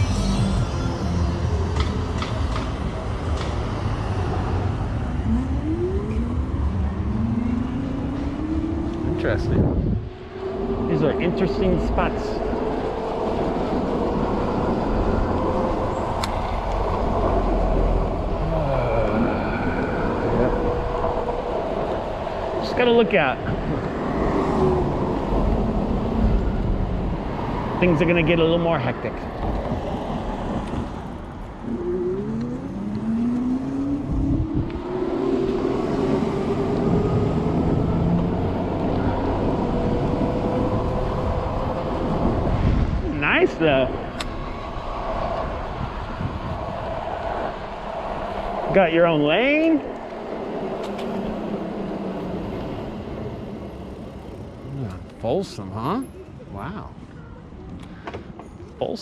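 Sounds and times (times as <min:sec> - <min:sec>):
wind rumbling on microphone: 0:00.0 - 0:55.3
road and traffic noise: 0:00.0 - 0:59.0
electric bike motor whine: 0:03.8 - 0:22.4, 0:31.2 - 0:43.0, 0:49.9 - 0:54.8.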